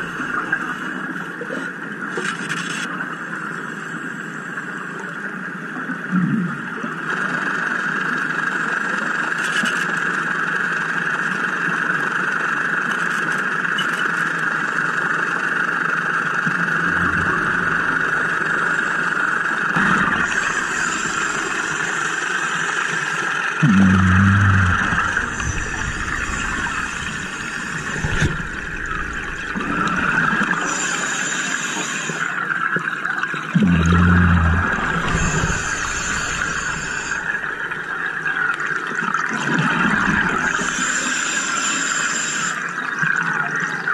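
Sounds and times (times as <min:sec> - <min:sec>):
muffled engine drone underwater: 0:00.0 - 0:43.9
low buzzing hum: 0:15.8 - 0:41.1
regulator bubbling underwater: 0:16.6 - 0:18.8, 0:19.6 - 0:22.0, 0:23.6 - 0:31.4, 0:32.0 - 0:40.9
breathing gear hiss: 0:20.2 - 0:32.4, 0:34.7 - 0:37.5, 0:40.5 - 0:42.6.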